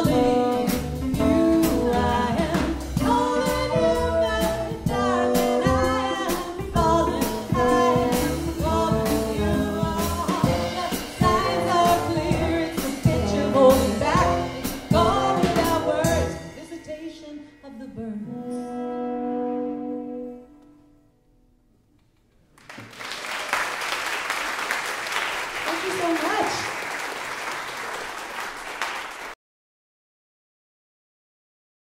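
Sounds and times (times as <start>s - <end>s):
live band playing: 0.0s - 17.2s, 25.1s - 26.7s.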